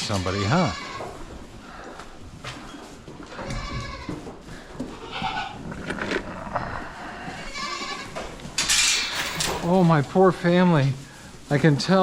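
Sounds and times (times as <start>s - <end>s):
goats bleating: 0.1s - 1.8s, 3.2s - 8.4s.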